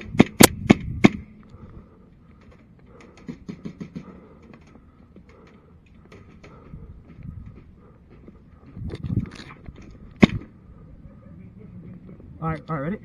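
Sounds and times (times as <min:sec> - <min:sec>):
airsoft pistol shots: 0:00.0 - 0:01.2, 0:10.2 - 0:10.5.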